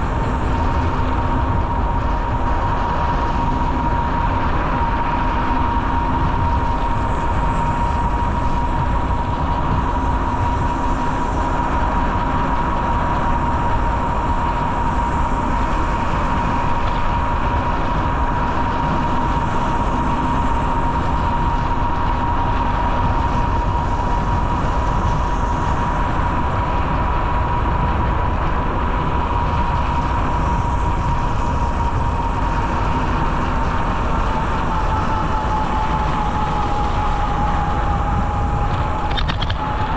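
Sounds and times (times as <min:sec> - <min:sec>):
constant high whine: 0:00.0 - 0:39.9
bicycle rolling along trail: 0:29.4 - 0:39.9.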